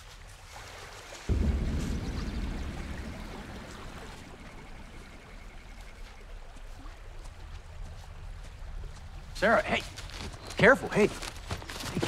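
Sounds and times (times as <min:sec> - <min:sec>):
river water rushing: 0:00.2 - 0:10.4
deep low rumble: 0:01.3 - 0:07.4.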